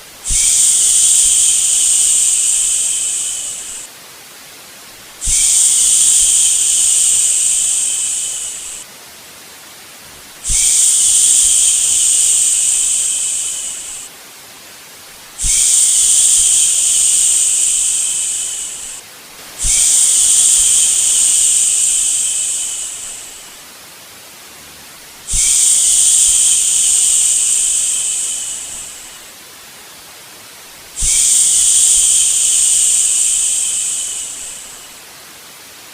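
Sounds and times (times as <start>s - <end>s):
faint steady hiss: 0.0s - 35.9s
person shushing: 0.3s - 3.9s, 5.2s - 8.8s, 10.1s - 14.1s, 15.4s - 19.0s, 19.6s - 23.6s, 25.3s - 29.3s, 31.0s - 35.0s.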